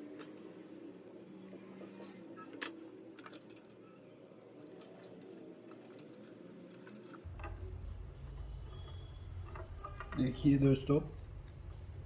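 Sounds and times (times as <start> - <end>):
small parts clicking: 2.4 - 10.4.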